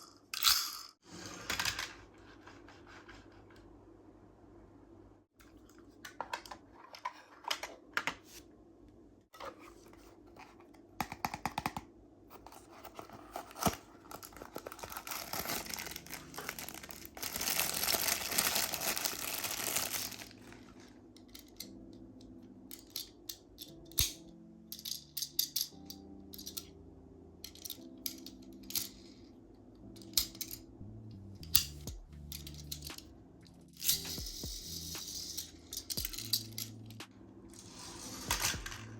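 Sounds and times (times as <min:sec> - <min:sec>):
soft background music: 0:09.3 - 0:38.9
toy packaging clicks and taps: 0:11.0 - 0:11.9
packaging tearing and crinkling: 0:12.9 - 0:20.4.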